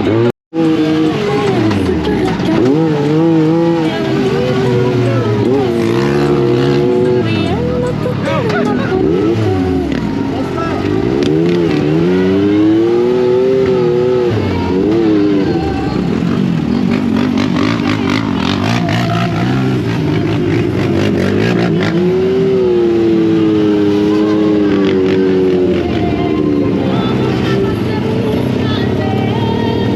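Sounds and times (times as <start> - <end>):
engine running hard: 0.0 - 29.9.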